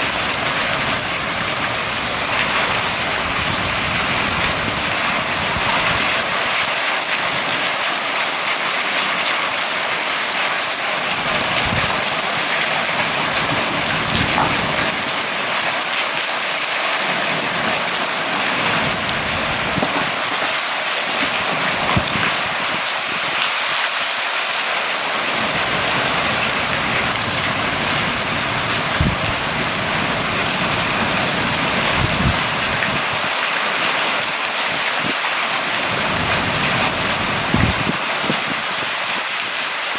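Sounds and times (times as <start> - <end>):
low thunder rumble: 0.0 - 6.2, 11.2 - 15.3, 17.2 - 23.2, 25.2 - 33.3, 35.8 - 38.9
heavy rain falling: 0.0 - 39.9.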